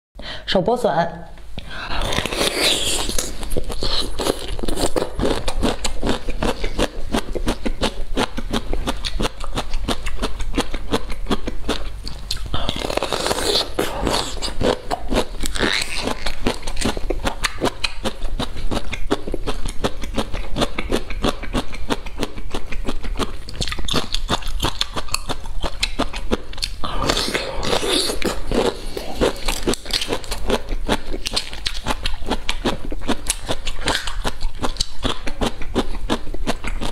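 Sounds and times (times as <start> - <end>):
crunching and chewing: 1.6 - 36.9
fibrous tearing: 1.9 - 9.5, 12.1 - 18.2.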